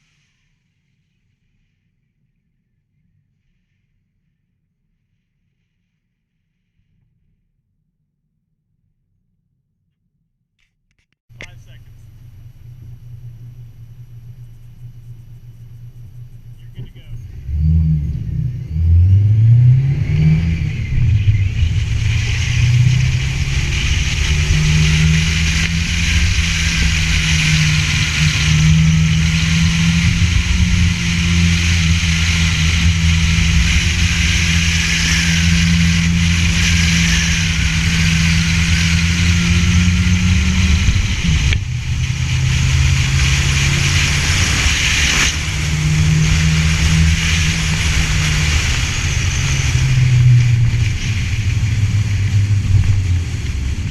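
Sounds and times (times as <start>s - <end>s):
race car engine running hard: 11.3s - 53.9s.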